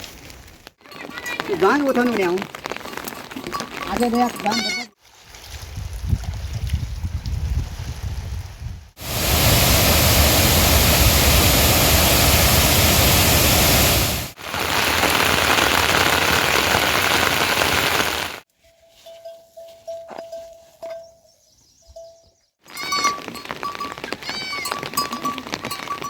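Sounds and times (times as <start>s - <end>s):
heavy rain falling: 9.0s - 18.4s.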